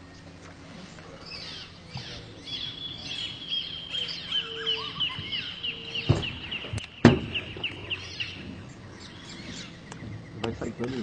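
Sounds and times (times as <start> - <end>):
birds chirping: 0.0 - 11.0
sharp knocks: 6.1 - 7.6.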